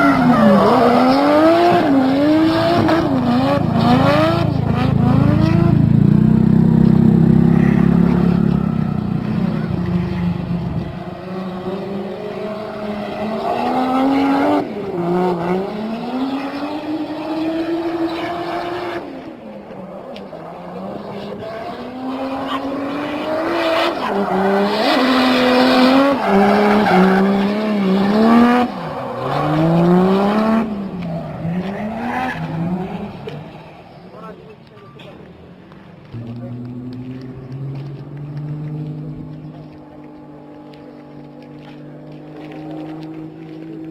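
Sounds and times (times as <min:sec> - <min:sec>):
car engine revving hard: 0:00.0 - 0:19.0, 0:20.7 - 0:33.2.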